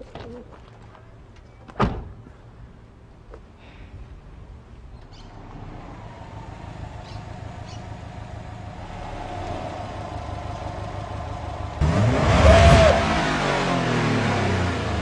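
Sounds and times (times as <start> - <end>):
car engine running: 5.4 - 15.0
loud engine rev: 5.4 - 15.0.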